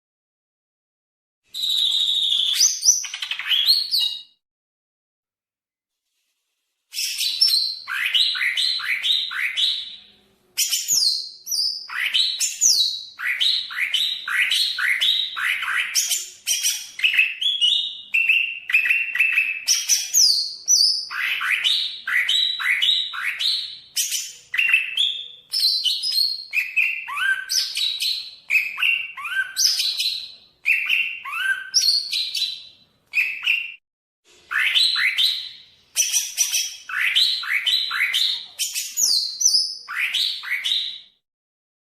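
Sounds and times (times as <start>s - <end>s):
bird singing varied song: 1.5s - 4.4s, 6.9s - 33.8s, 34.5s - 41.2s.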